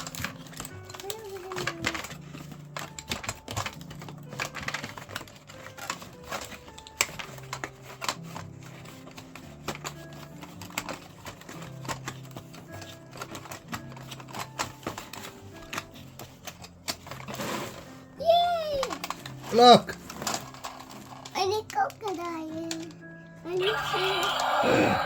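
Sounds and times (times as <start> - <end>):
plastic toy and packaging clicking: 0.0 - 25.0.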